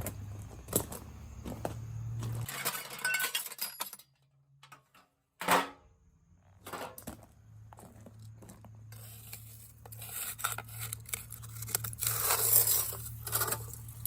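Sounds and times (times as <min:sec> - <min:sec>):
scrap metal clinking and knocking: 0:02.2 - 0:05.8, 0:06.6 - 0:07.2.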